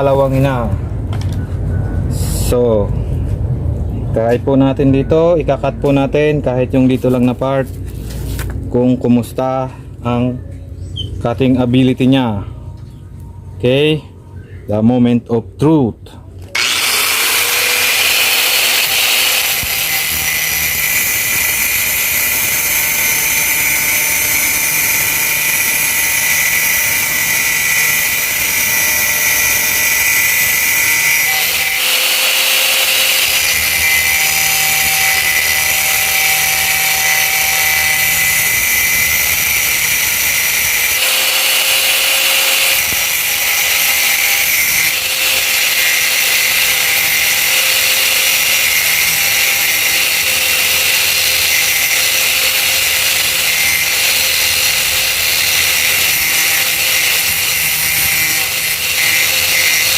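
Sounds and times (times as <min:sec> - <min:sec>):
angle grinder cutting steel: 0:16.5 - 0:59.9.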